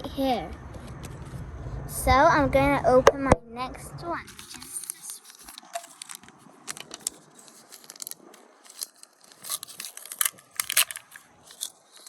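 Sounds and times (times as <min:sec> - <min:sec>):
plastic bag crinkling: 0:04.3 - 0:12.0.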